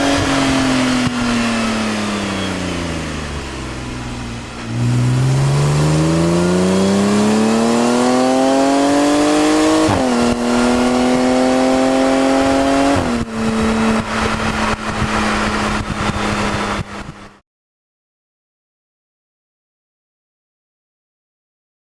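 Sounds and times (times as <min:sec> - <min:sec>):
car engine accelerating: 0:00.0 - 0:17.4.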